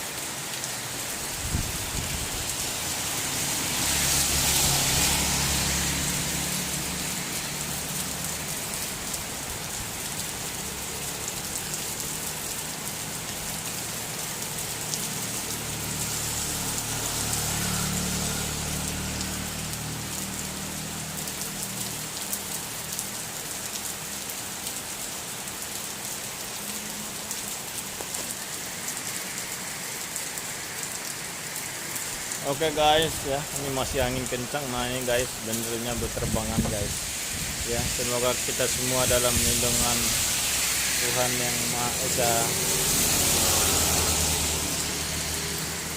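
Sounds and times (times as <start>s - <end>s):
heavy rain pouring: 0.0s - 45.9s
strong wind: 1.4s - 2.6s, 36.0s - 38.1s.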